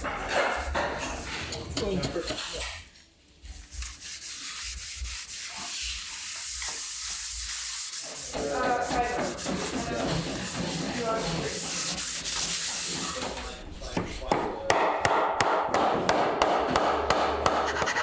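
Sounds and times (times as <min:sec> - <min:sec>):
wood being rasped: 0:04.2 - 0:18.0.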